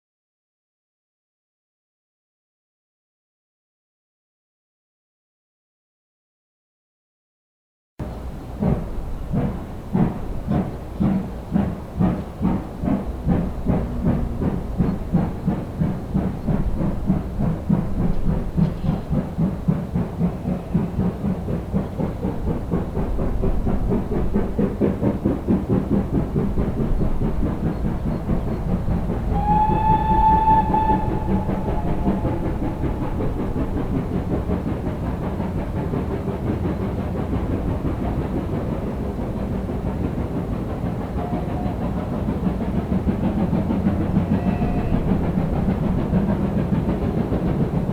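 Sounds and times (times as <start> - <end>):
steam locomotive exhaust beats: 8.0 - 47.9
steam whistle blast: 29.3 - 33.7, 44.3 - 45.1.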